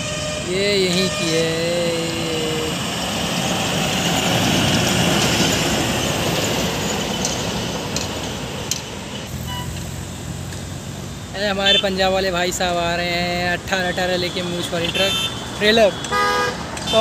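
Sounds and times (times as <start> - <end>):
truck passing on highway: 0.0 - 17.0.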